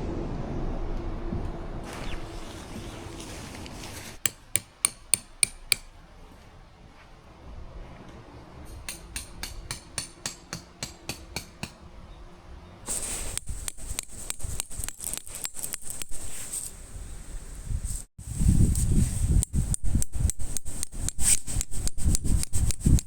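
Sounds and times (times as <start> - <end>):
hammer striking metal: 4.2 - 6.0, 8.6 - 12.0.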